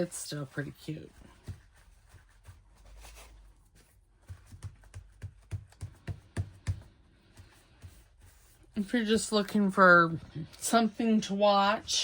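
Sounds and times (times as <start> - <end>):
paper and card handled: 0.5 - 6.4.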